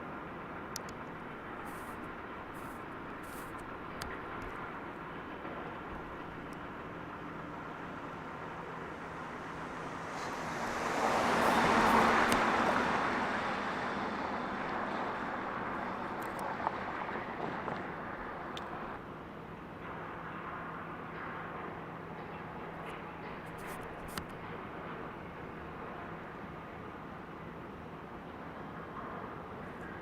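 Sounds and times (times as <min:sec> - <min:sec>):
steady traffic hum: 0:00.0 - 0:30.0
vehicle passing close by: 0:09.9 - 0:16.0.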